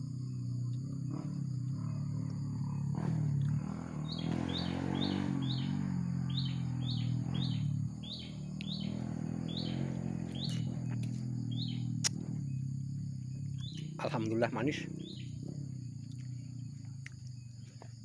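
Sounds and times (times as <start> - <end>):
small bird chirping: 0.0 - 18.0
steady low hum: 0.0 - 18.0.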